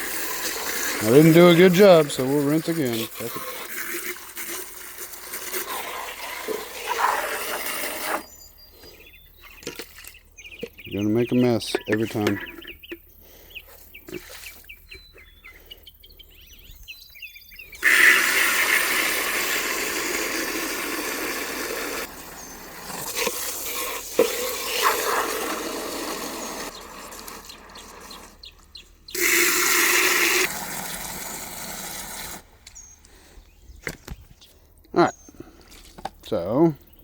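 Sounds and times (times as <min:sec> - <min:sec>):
hose spraying water into plastic: 0:00.0 - 0:08.4, 0:17.8 - 0:32.5.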